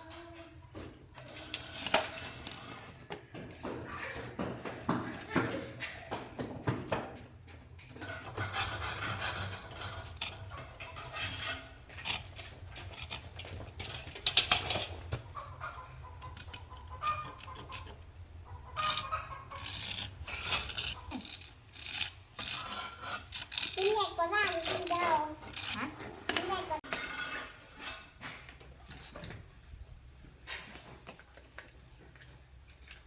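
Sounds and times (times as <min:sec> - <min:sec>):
hand rasping and scraping: 0:08.0 - 0:14.2, 0:18.8 - 0:28.2.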